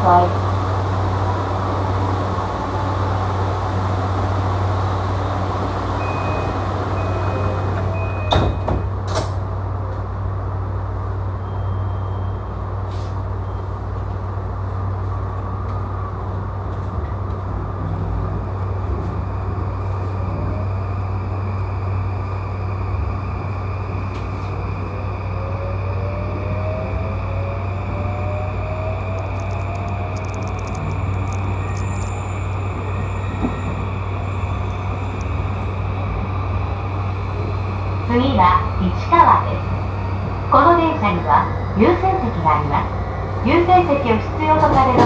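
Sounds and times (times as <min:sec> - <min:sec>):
train doors shutting: 0:00.0 - 0:10.2, 0:17.0 - 0:45.0
door chime beeps: 0:06.0 - 0:08.7, 0:29.0 - 0:35.4
traction motor whine: 0:20.7 - 0:38.1
low cabin hum: 0:20.7 - 0:45.0.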